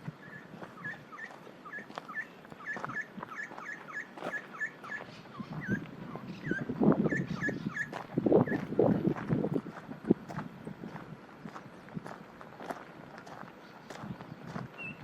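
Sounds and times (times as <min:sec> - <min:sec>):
footsteps crunching on trail: 0:00.0 - 0:15.0
animal making high calls: 0:00.2 - 0:08.7.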